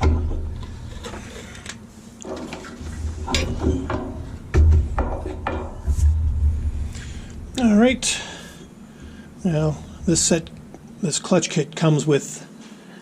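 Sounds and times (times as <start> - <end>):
clicks and knocks of parts and tools: 0.0 - 6.2
low rumble of handling: 0.0 - 11.6.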